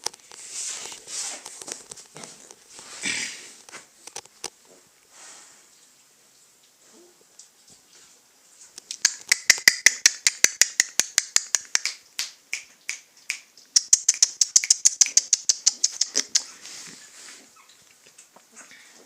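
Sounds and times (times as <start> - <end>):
piglet suckling: 13.8 - 17.8.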